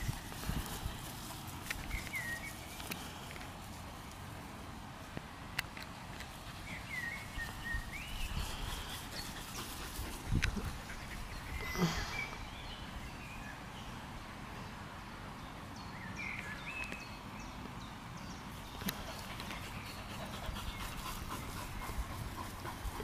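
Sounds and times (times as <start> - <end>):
birds whistling: 1.8 - 3.1, 11.0 - 13.5.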